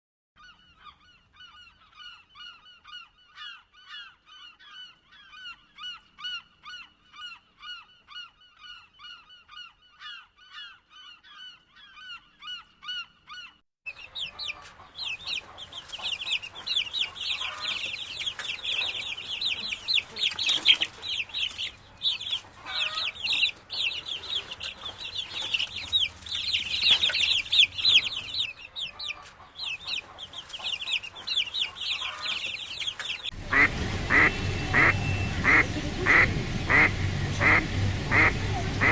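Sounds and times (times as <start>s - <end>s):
bird calling: 13.9s - 38.9s
flock of birds calling: 14.0s - 38.9s.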